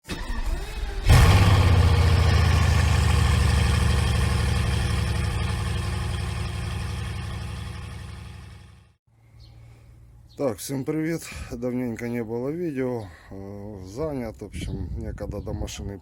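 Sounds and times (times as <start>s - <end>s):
car engine cranking: 0.1s - 8.4s
car engine running: 1.1s - 9.0s.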